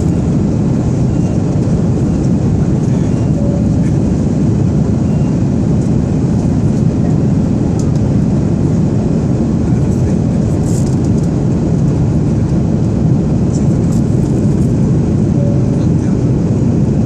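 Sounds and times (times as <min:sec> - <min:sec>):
jet cabin engine rumble: 0:00.0 - 0:17.0.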